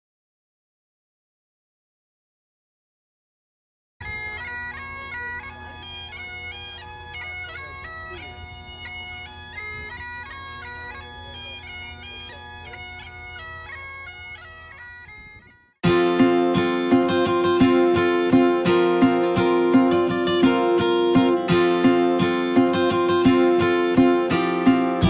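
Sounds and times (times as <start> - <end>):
bagpipes playing: 4.0 - 25.0
acoustic guitar strumming: 15.8 - 25.0.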